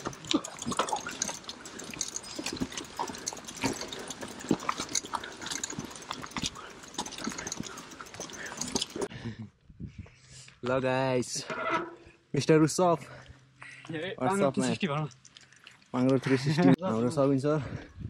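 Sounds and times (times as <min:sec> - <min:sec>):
mountain bike clicking and knocking: 0:00.0 - 0:09.1.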